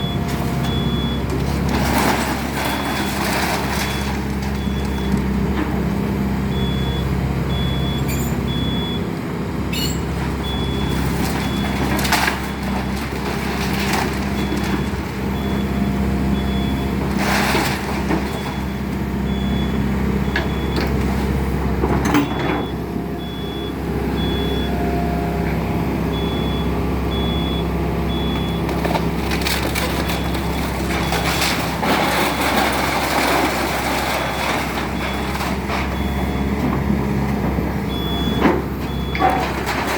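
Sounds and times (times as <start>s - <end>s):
excavator engine running: 0.0s - 39.9s
wood cracking and crunching: 28.6s - 36.5s.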